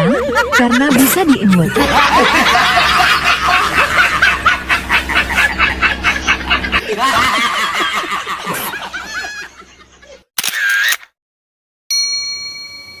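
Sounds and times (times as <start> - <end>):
squeaky snickering laughter: 2.3 - 10.9
bell ding: 11.9 - 13.0.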